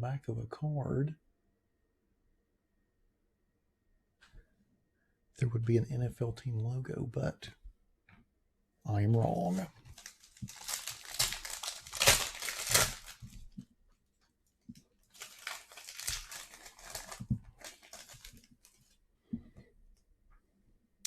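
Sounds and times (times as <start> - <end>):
wrapper tearing and crinkling: 9.5 - 13.5, 15.0 - 18.9.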